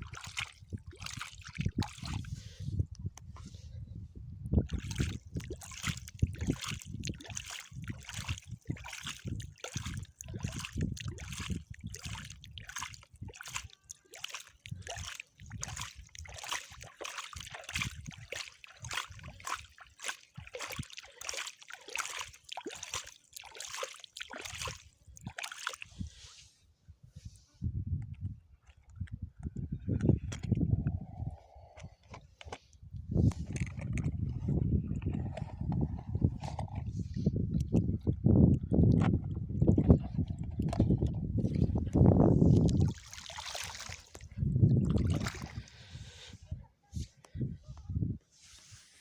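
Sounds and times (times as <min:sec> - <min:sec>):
sand scooped and poured: 0:25.8 - 0:27.6, 0:48.3 - 0:49.0.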